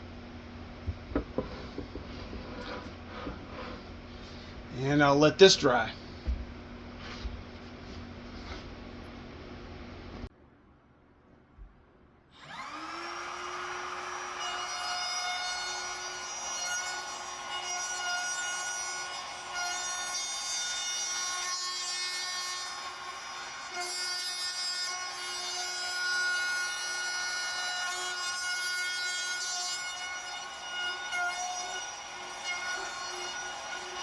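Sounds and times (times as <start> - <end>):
router cutting wood: 12.4 - 34.0.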